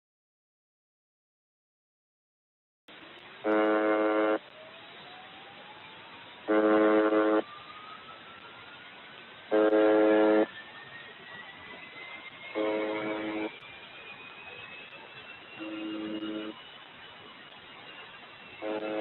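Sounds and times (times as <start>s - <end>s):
receiver hiss: 2.9s - 19.0s
harsh radio buzz tone: 3.4s - 4.4s, 6.5s - 7.4s, 9.5s - 10.5s, 12.5s - 13.6s, 15.6s - 16.6s, 18.6s - 19.0s
thin rising whistle: 3.7s - 19.0s.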